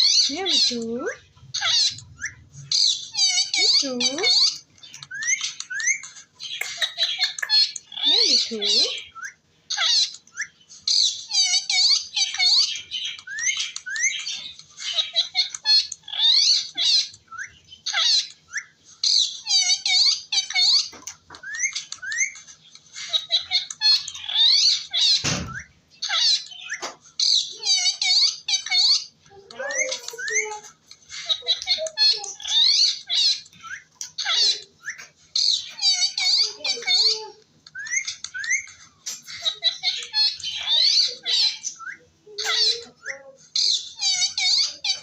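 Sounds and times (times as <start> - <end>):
parrot chattering and squawking: 0.0 - 45.0
thump: 25.2 - 25.6.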